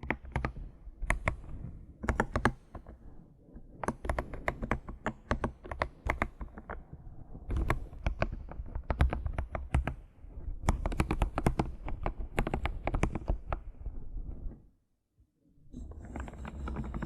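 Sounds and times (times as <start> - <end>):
typing on computer keyboard: 0.0 - 3.0, 3.7 - 6.8, 7.5 - 10.0, 10.6 - 13.6, 16.0 - 17.0.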